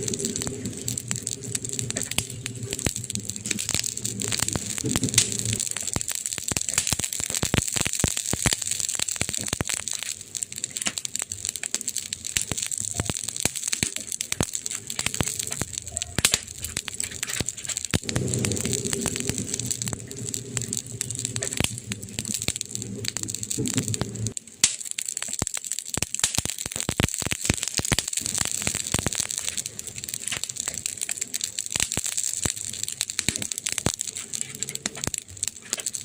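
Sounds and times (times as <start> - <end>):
low rumble: 0.0 - 5.9, 14.9 - 24.4
wood fire crackling and popping: 0.0 - 36.0.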